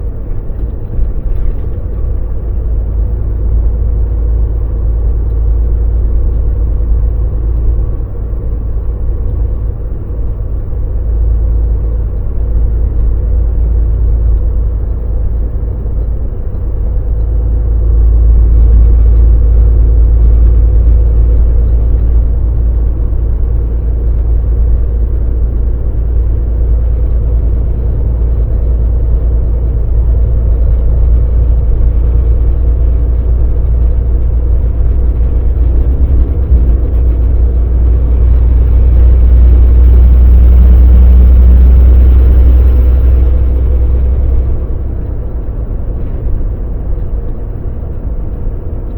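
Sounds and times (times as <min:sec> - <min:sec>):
truck engine rumble: 0:00.0 - 0:48.9.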